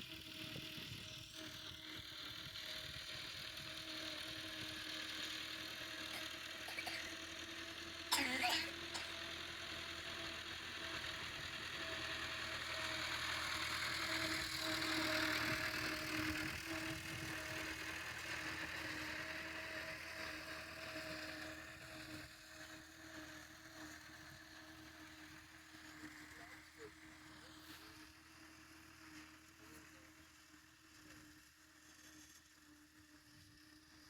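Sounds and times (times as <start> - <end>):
tractor engine running: 0.1 - 22.3.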